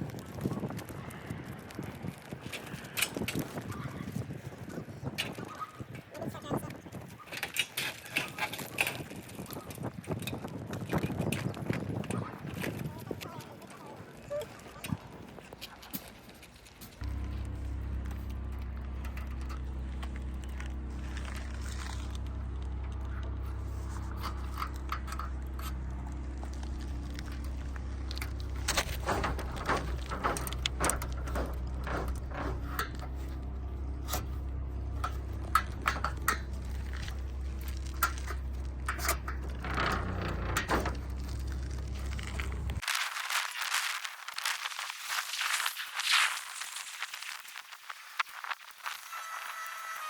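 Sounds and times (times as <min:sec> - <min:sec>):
wire mesh scraping and rattling: 0:00.0 - 0:47.7
low rumble: 0:16.9 - 0:42.8.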